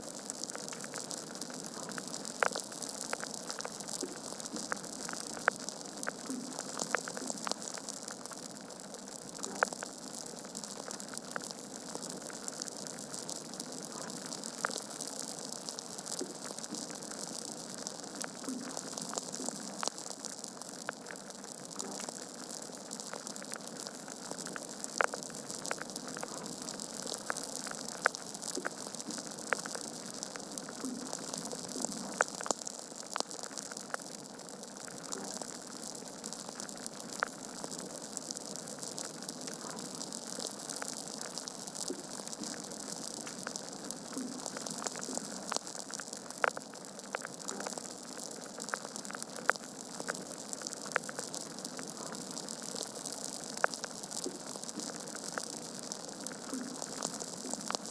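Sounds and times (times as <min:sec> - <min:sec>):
wood fire crackling: 0:00.1 - 0:57.9.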